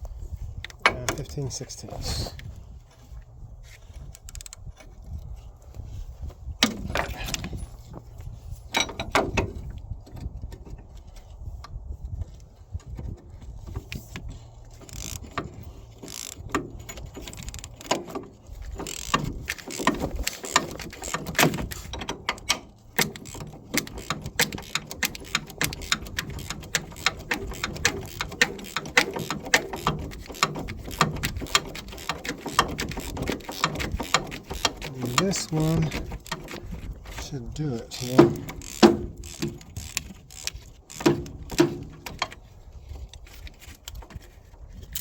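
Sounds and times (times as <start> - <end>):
ratchet wrench clicking: 14.8 - 42.4.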